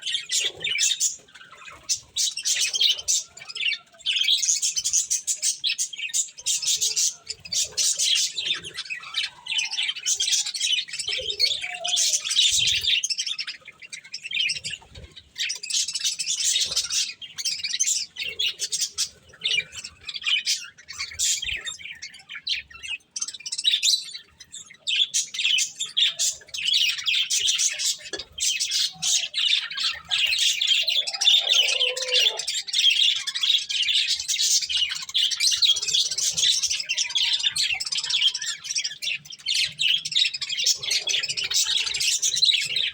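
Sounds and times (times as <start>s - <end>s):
budgerigars chattering and chirping: 0.0s - 42.9s
bird squawks: 25.0s - 42.9s.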